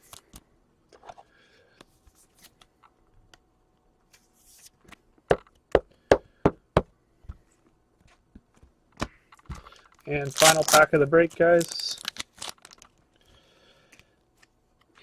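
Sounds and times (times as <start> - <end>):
cards clicking and rustling: 8.5 - 13.0.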